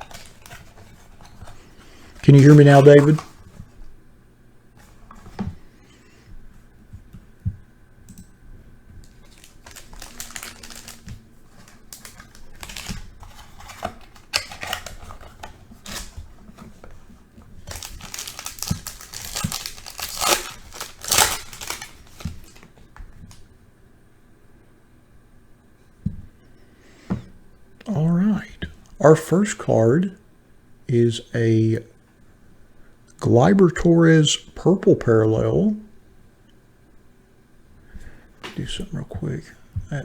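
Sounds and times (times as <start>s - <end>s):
plastic wrapping crinkling and tearing: 0.0s - 3.6s, 9.0s - 16.7s, 17.6s - 23.4s.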